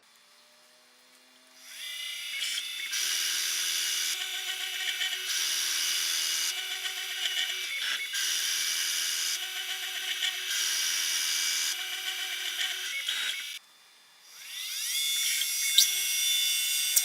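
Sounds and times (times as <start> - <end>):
electric drill running: 1.6 - 13.6, 14.2 - 17.0.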